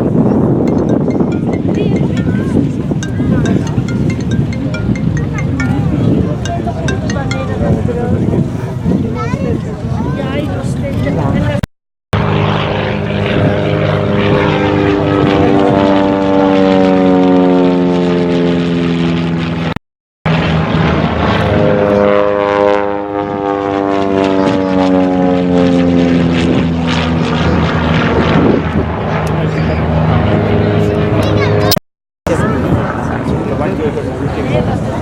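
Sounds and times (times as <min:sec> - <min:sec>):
propeller airplane flying past: 0:12.2 - 0:35.0.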